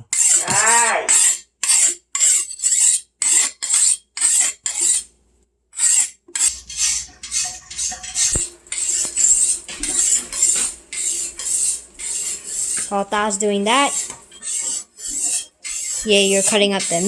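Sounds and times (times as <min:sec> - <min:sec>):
knife sharpening strokes: 0:00.1 - 0:00.5, 0:01.1 - 0:05.1, 0:05.8 - 0:17.0.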